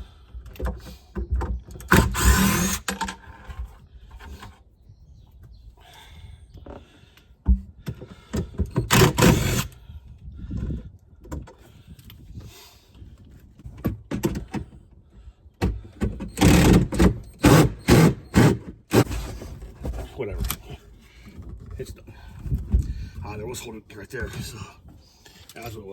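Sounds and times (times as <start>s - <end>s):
power drill short bursts: 1.9s - 2.9s, 8.8s - 9.8s, 16.2s - 19.2s.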